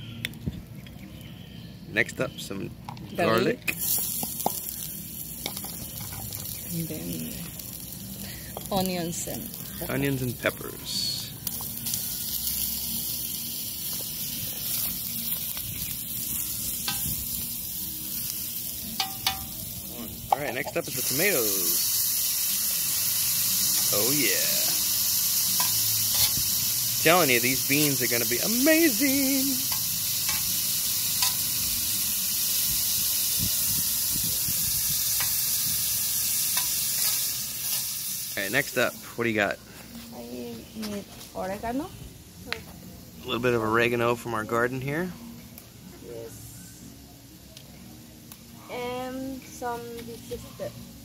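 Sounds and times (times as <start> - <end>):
vegetables sizzling in oil: 3.1 - 39.4
utensil clinking on pan: 19.0 - 19.5.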